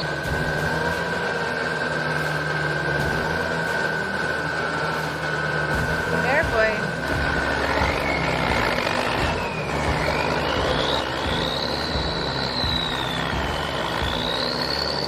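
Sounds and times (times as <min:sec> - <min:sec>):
heavy machine engine running: 0:00.0 - 0:15.0
high whine: 0:00.0 - 0:15.0.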